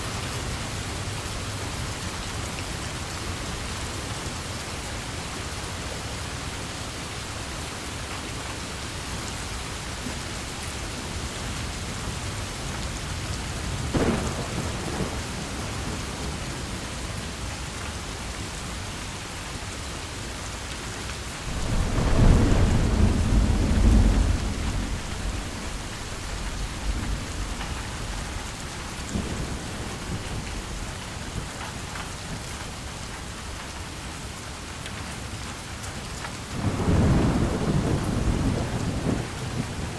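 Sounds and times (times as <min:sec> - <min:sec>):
heavy rain: 0:00.0 - 0:39.9
rolling thunder rumble: 0:11.2 - 0:18.5, 0:21.4 - 0:31.6, 0:36.5 - 0:39.9
thunder crack: 0:13.8 - 0:16.8, 0:21.5 - 0:28.2, 0:36.6 - 0:39.9.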